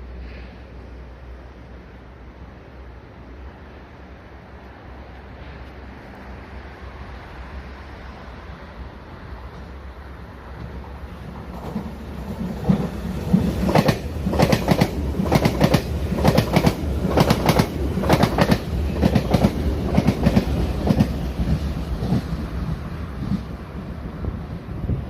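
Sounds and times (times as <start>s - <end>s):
train rumble: 0.0s - 25.0s
train wheels clattering over rail joints: 10.6s - 23.5s.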